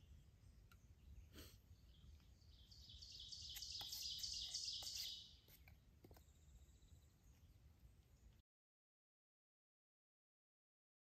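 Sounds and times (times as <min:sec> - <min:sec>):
forest ambience: 0:00.0 - 0:08.4
songbird singing rapid high notes: 0:01.9 - 0:05.4.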